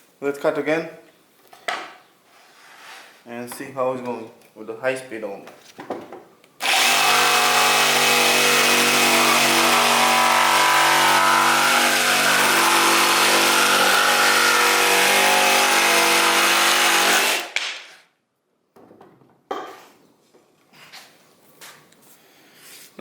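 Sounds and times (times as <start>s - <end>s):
jigsaw cutting wood: 6.6s - 17.6s.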